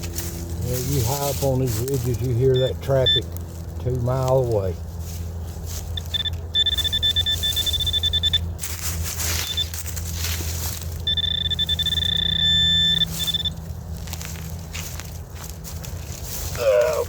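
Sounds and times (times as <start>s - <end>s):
distant road traffic: 0.0s - 17.0s
metal detector tone: 0.7s - 3.4s, 5.8s - 13.7s.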